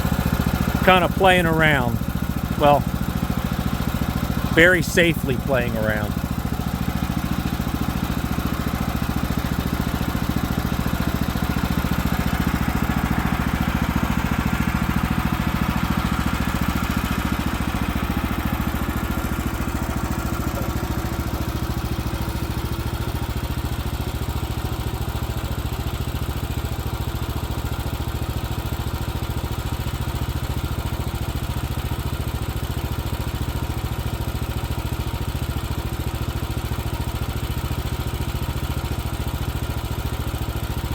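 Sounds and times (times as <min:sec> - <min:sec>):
sawmill engine running: 0:00.0 - 0:23.1.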